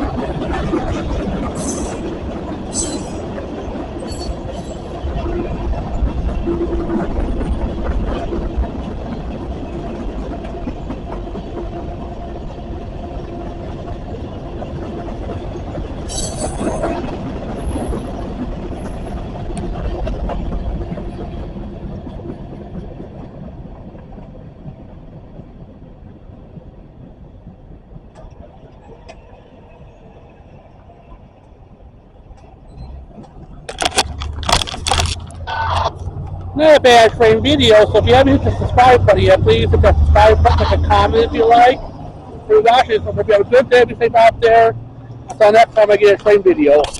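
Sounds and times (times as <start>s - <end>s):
freight train rumbling past: 0.0s - 46.9s
high-pitched wheel squeal: 2.7s - 3.3s, 4.0s - 4.9s, 35.4s - 36.1s.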